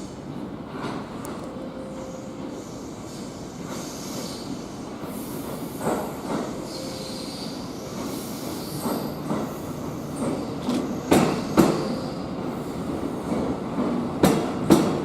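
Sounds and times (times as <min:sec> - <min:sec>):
train rolling on tracks: 0:00.0 - 0:15.0.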